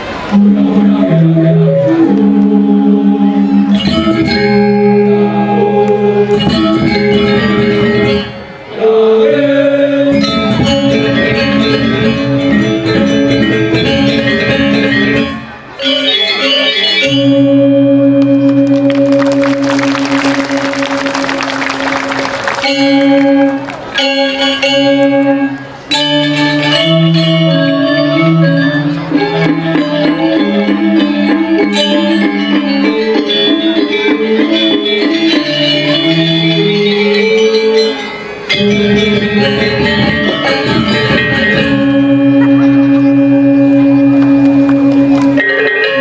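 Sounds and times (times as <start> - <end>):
gamelan ensemble playing: 0.0 - 46.0
bronze metallophone strikes: 3.4 - 5.1, 6.3 - 8.4, 22.6 - 45.5.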